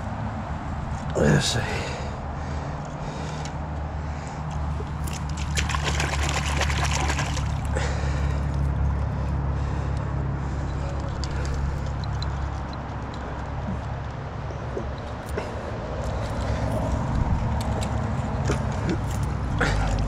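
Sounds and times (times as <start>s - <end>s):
water splashing in a creek: 4.7s - 8.2s.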